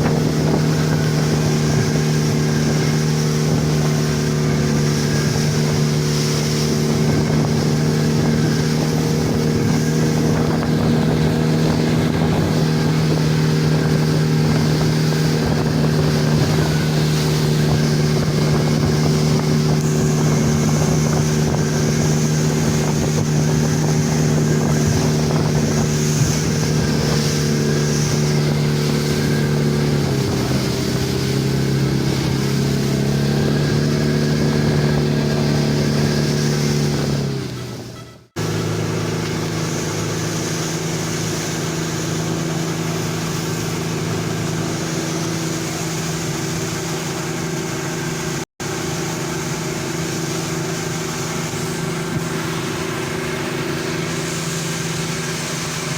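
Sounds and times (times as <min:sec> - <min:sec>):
wind rushing: 0:00.0 - 0:37.4
speedboat engine running: 0:00.0 - 0:55.9
water rushing: 0:00.0 - 0:55.9.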